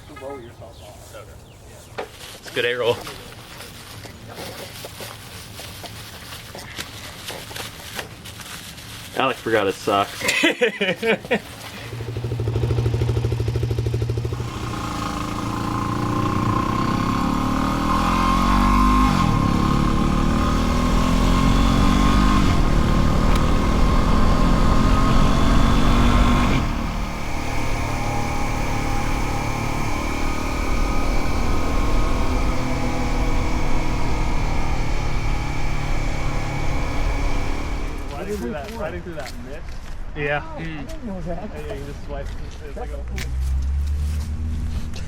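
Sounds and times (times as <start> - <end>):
motorcycle engine accelerating: 11.4 - 39.3, 42.7 - 45.0.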